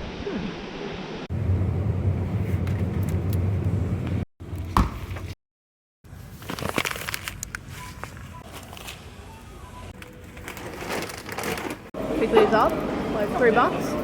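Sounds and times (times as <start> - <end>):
vehicle driving rumble: 1.3 - 4.6.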